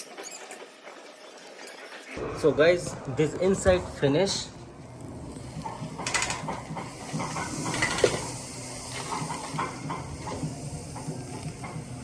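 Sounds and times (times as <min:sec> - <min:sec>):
steady hiss: 0:06.7 - 0:12.0.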